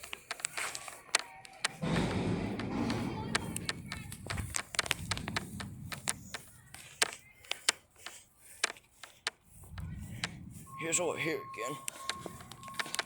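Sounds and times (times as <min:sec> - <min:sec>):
sharp clicks and taps: 0:00.0 - 0:10.4, 0:11.8 - 0:13.0
low rumble: 0:01.8 - 0:06.4.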